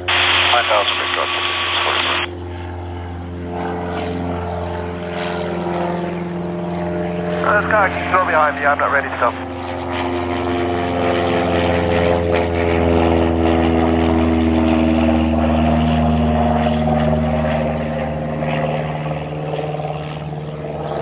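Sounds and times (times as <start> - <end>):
propeller plane passing by: 0.0 - 21.0.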